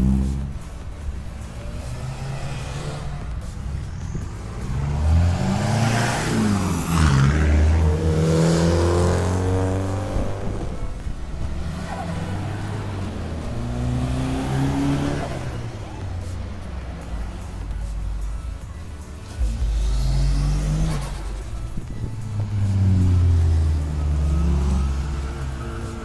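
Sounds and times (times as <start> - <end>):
second engine revving: 1.4 - 18.4, 19.2 - 26.0
car engine revving past: 1.5 - 17.4, 19.3 - 21.5.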